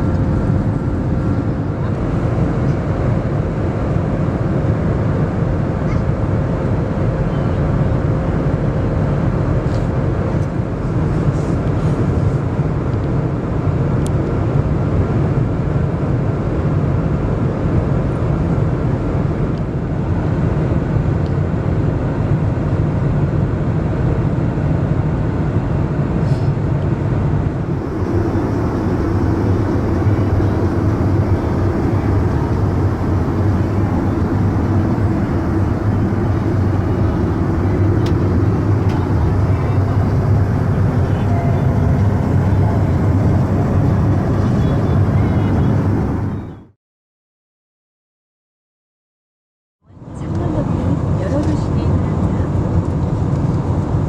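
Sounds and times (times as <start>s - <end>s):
jet engine hum: 27.0s - 46.8s.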